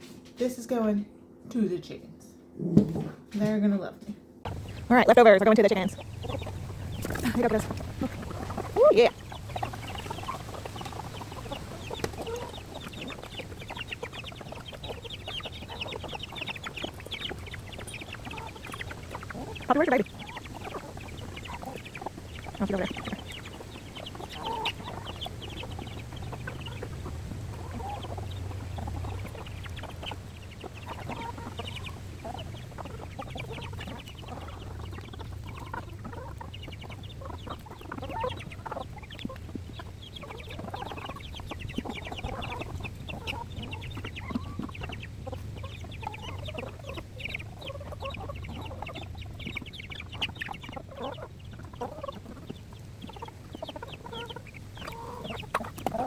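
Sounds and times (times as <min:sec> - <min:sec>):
steady low hum: 0:00.2 - 0:47.6
chickens clucking: 0:04.4 - 0:56.0.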